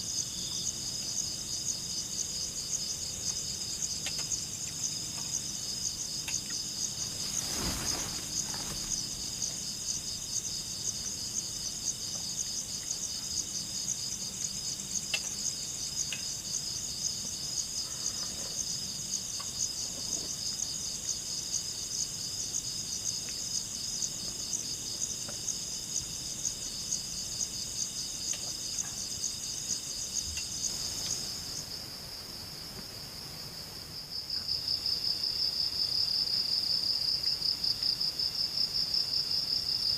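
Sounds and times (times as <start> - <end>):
crickets trilling: 0.0 - 39.9
faint ticks: 14.4 - 16.3.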